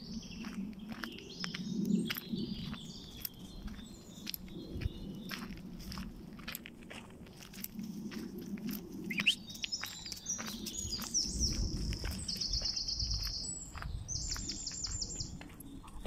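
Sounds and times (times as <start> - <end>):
songbird singing trills: 0.0 - 6.0, 9.0 - 16.0
footsteps on woodland path: 0.0 - 16.0.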